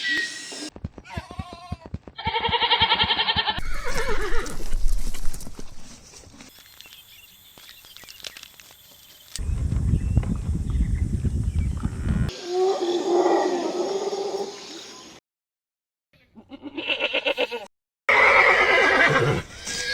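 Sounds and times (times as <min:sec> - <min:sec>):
horse whinnying: 0:02.2 - 0:04.8, 0:18.1 - 0:19.9.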